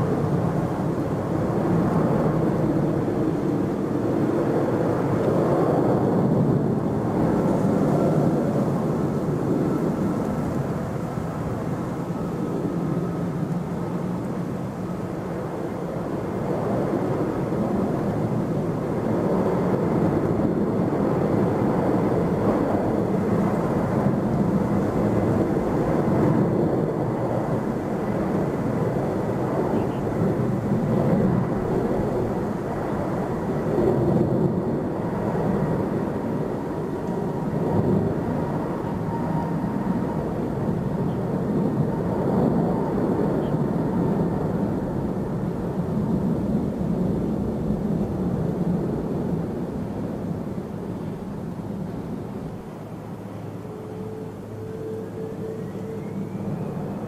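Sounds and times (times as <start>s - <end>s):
jet engines rumbling: 0.0s - 57.0s
faint high whine: 5.4s - 44.5s, 50.5s - 57.0s.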